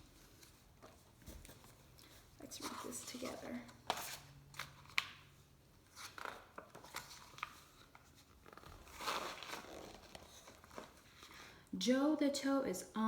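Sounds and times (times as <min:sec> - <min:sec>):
book pages turning: 0:02.6 - 0:11.5.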